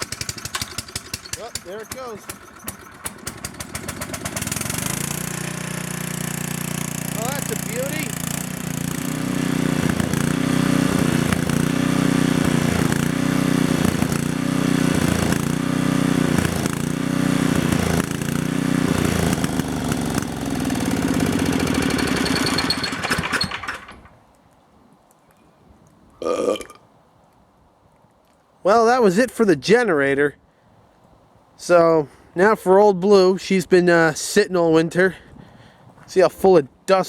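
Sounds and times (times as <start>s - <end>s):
generator engine surging: 0.0s - 24.1s.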